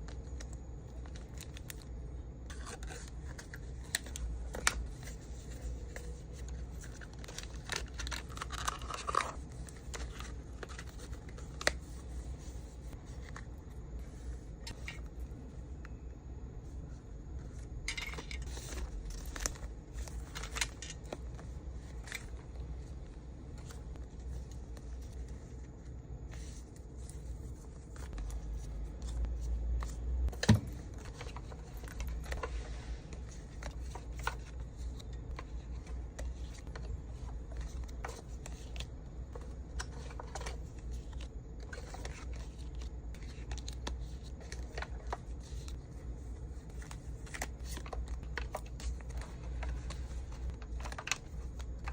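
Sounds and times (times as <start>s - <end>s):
packaging clicks and rustles: 0.0s - 13.6s, 17.9s - 51.9s
steady low hum: 0.0s - 51.9s.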